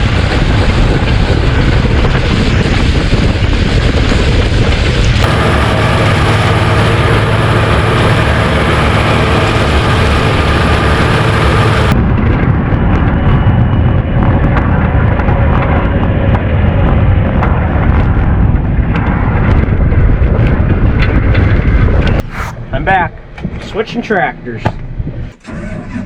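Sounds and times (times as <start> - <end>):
rough rumble with crackling clicks: 0.0 - 26.0
tractor engine running: 4.7 - 12.0.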